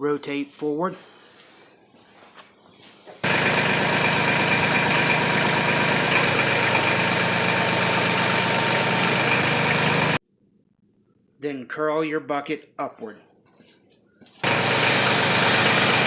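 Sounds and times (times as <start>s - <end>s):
tractor diesel engine running: 3.2s - 10.2s, 14.4s - 16.0s.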